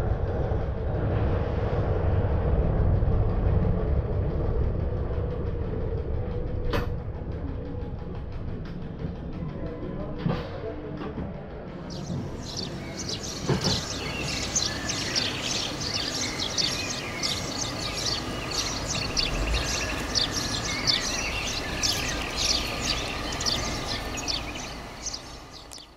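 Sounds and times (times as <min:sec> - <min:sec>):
birds chirping: 0:11.8 - 0:25.9.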